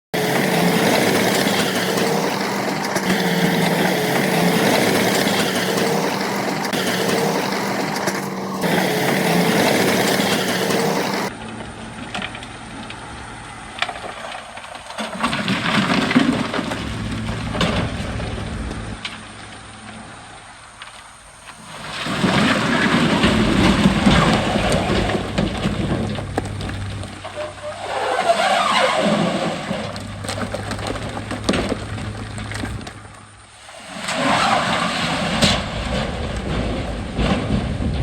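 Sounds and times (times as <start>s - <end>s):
loud diesel engine droning: 0.0s - 14.8s, 21.5s - 33.4s
machinery rumble: 0.0s - 33.6s, 35.2s - 38.0s.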